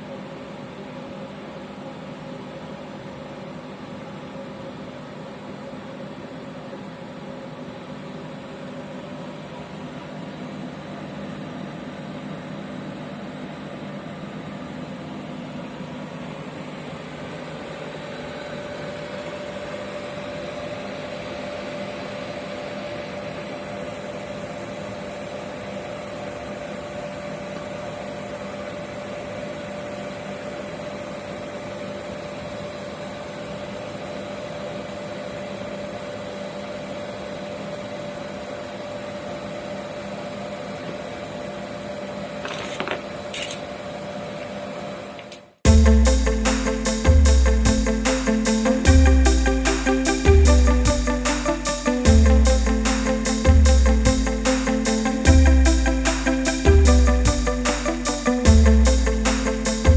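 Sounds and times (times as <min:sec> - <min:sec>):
oil burner running: 0:45.7 - 0:59.9.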